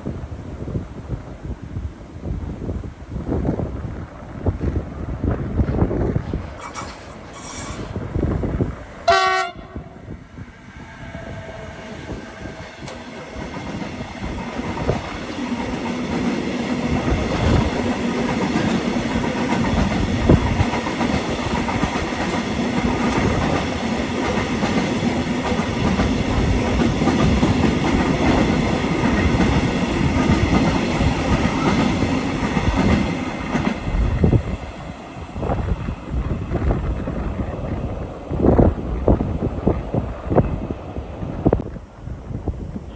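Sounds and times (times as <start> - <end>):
train wheels rumbling on rails: 0.0 - 42.9
train horn blast: 9.0 - 10.1, 10.8 - 12.7.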